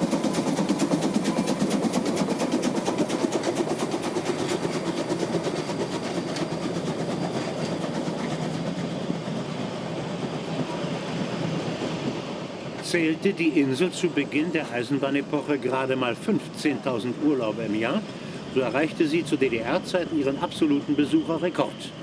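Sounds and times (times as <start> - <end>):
steam train running rhythmically: 0.0 - 22.0.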